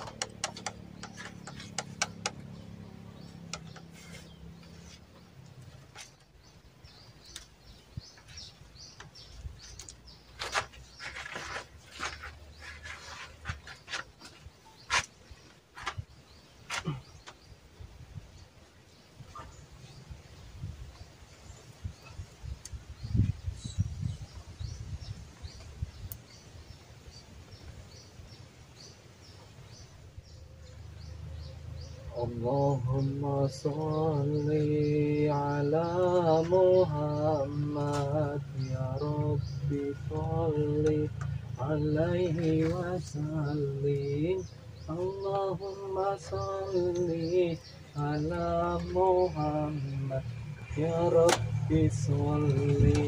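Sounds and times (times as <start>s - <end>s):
birds chirping: 0.0s - 53.0s
rustling scrapes: 3.8s - 6.3s, 10.2s - 17.0s
low uneven rumbling: 19.3s - 53.0s.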